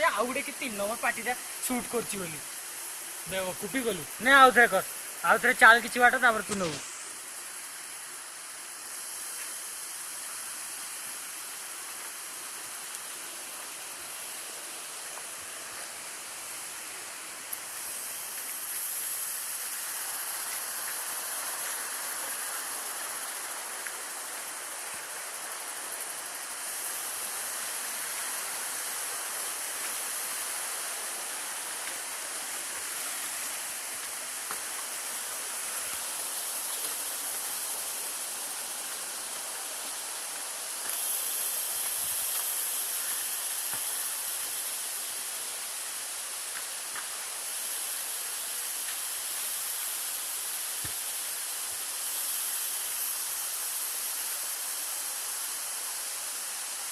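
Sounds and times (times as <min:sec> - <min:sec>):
waterfall rushing: 0:00.0 - 0:07.0.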